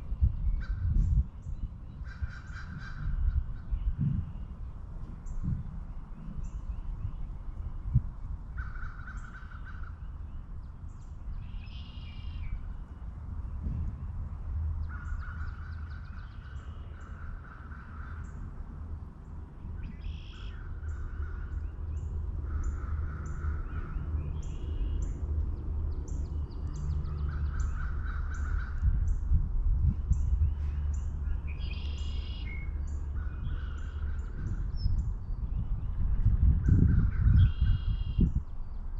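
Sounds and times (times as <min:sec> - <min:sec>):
steady low rumble: 0:00.0 - 0:38.9
crows cawing: 0:02.0 - 0:03.2, 0:08.6 - 0:10.0, 0:14.9 - 0:18.4, 0:20.3 - 0:21.6, 0:22.4 - 0:23.9, 0:27.2 - 0:28.9
songbird high chirps: 0:09.2 - 0:14.1, 0:19.8 - 0:28.5, 0:29.9 - 0:38.9.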